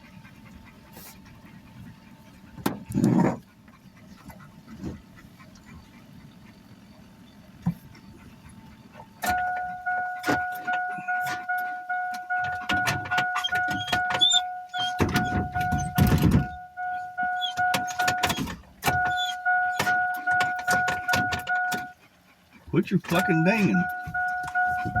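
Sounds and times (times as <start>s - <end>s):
truck warning chime dinging: 9.1s - 22.0s, 22.8s - 25.0s.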